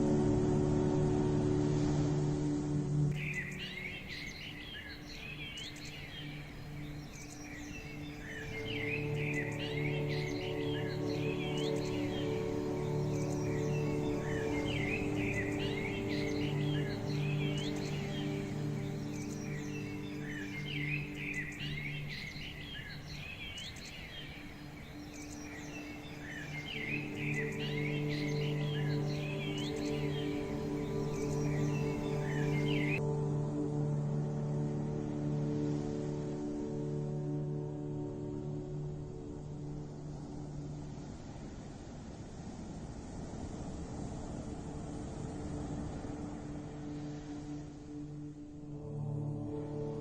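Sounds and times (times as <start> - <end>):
ambient music drone: 0.0 - 50.0
birds chirping and twittering: 3.1 - 33.1.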